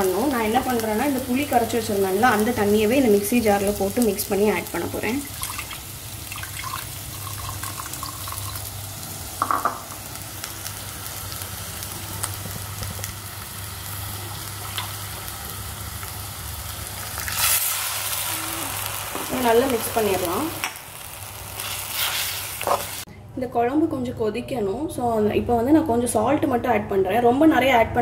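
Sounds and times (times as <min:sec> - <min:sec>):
onions sizzling in hot oil: 0:00.0 - 0:23.1
liquid poured into hot pot hissing: 0:05.3 - 0:08.9.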